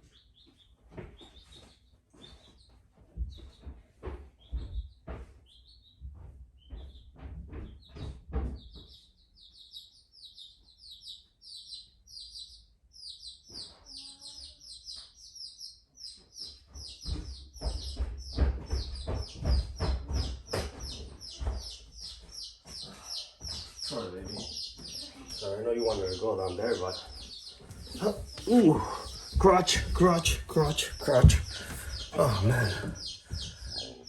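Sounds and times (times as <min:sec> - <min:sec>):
bird chirping: 0:00.0 - 0:03.7, 0:06.6 - 0:34.0
knocks and thumps: 0:17.0 - 0:21.8, 0:27.7 - 0:33.9.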